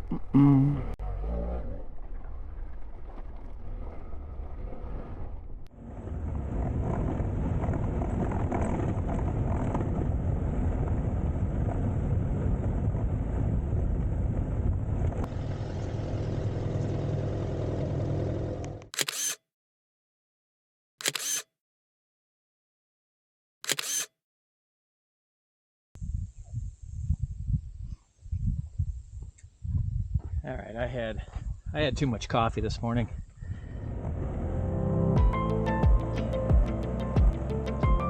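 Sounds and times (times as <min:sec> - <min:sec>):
wind noise: 0:02.3 - 0:15.3, 0:26.0 - 0:34.8
motorcycle engine running: 0:15.0 - 0:18.9.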